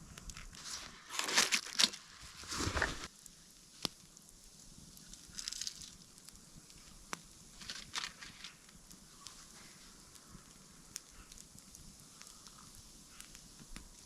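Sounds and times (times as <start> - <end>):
faint steady hiss: 0.0 - 14.0
sharp snaps and crackles: 0.0 - 14.0
light rustling: 0.6 - 3.1.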